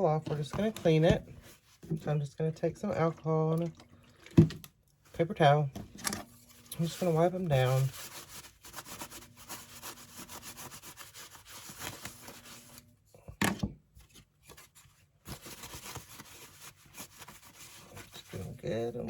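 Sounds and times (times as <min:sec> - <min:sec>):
paper towel rubbing on board: 0:06.8 - 0:12.8, 0:15.3 - 0:19.0.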